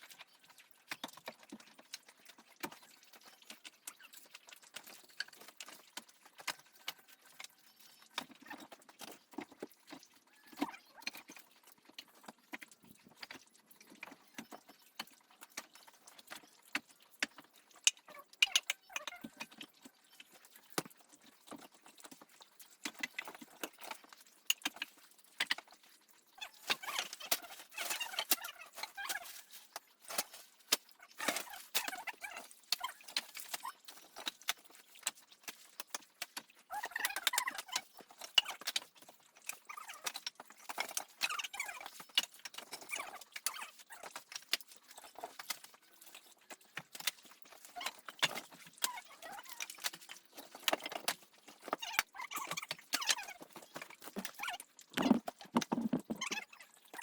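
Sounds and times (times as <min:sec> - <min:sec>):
scraping and rustling: 0:53.3 - 0:56.4
hard objects knocking and clattering: 0:54.2 - 0:56.4.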